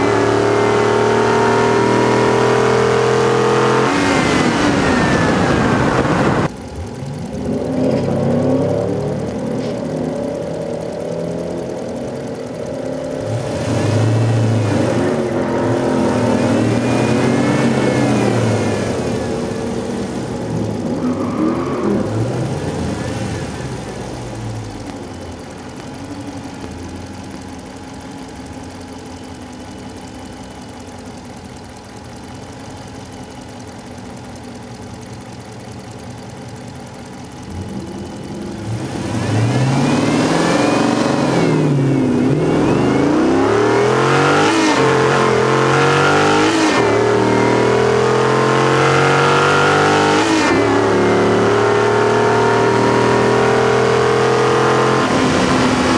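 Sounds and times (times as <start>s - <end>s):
car engine accelerating: 0.0s - 55.9s
car engine idling: 0.0s - 55.9s.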